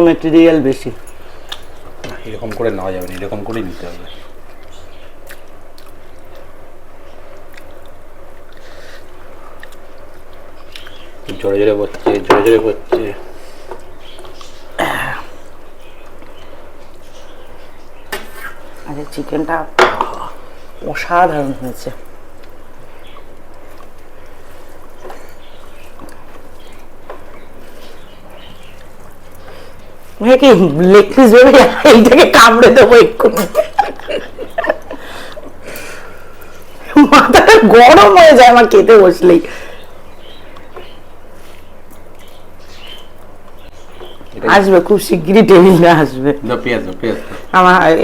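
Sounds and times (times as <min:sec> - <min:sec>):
steady low hum: 0:00.0 - 0:48.0
chewing food: 0:01.0 - 0:19.2, 0:20.0 - 0:30.2, 0:39.7 - 0:44.5
faint wet clicks: 0:04.2 - 0:06.7, 0:07.3 - 0:11.1.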